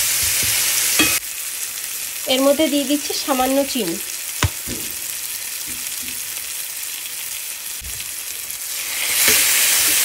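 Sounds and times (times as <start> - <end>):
food sizzling in oil: 0.0 - 10.0
sharp knock on pan: 4.4 - 5.0.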